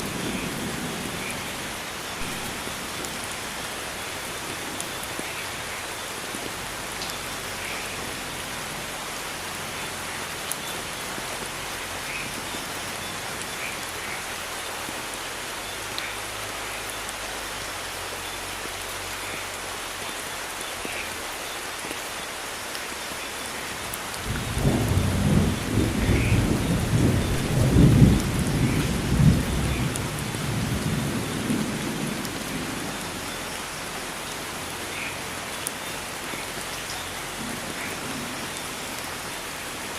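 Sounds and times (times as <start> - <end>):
steady rain falling: 0.0 - 39.9
thunder rumbling: 23.9 - 33.4.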